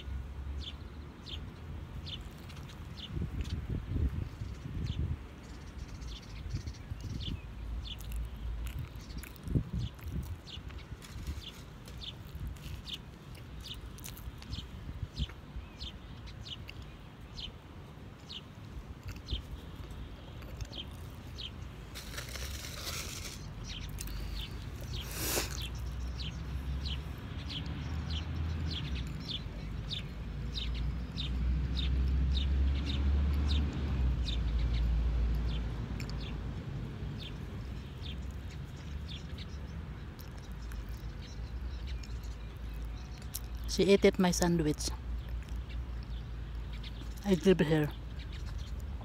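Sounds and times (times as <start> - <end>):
small birds chirping: 0.0 - 49.0
wind rumble on microphone: 2.0 - 13.0, 13.6 - 15.9.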